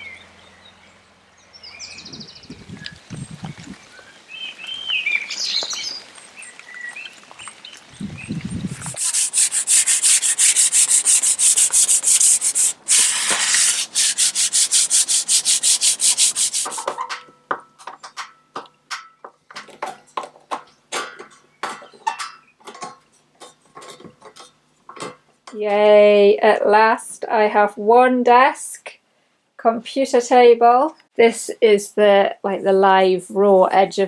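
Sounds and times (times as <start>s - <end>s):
birds singing: 0.0s - 9.0s
scratchy sanding strokes: 8.7s - 17.0s.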